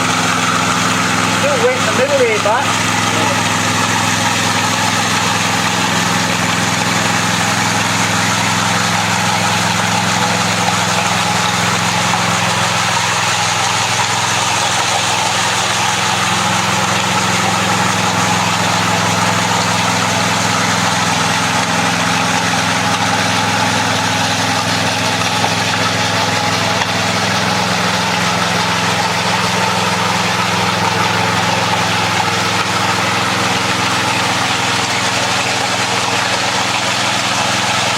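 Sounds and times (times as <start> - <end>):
power trowel engine running: 0.0 - 37.9.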